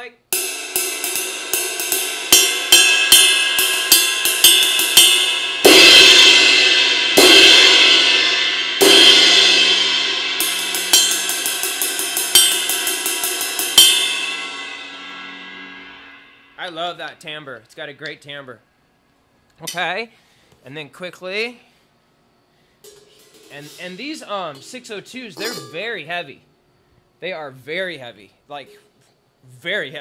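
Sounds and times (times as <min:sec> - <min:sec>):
cymbal ride pattern: 0:00.0 - 0:17.5, 0:22.8 - 0:26.1
cymbal crashes: 0:00.3 - 0:16.8.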